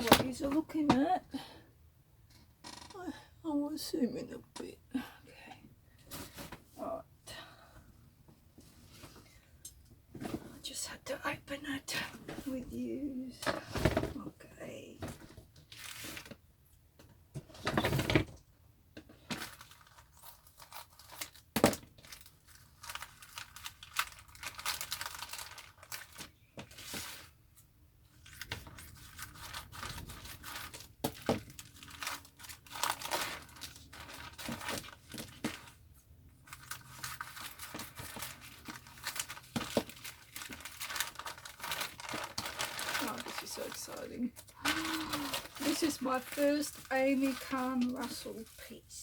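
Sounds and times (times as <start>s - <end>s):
packaging tearing and crinkling: 19.4s - 27.3s, 28.2s - 35.8s, 36.5s - 48.6s.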